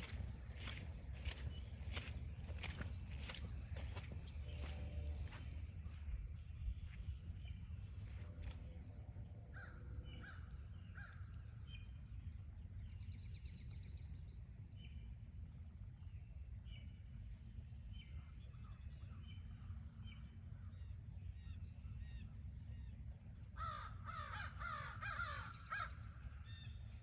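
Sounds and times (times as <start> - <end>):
wild birds calling: 0.0 - 6.1
steady low rumble: 0.0 - 10.0.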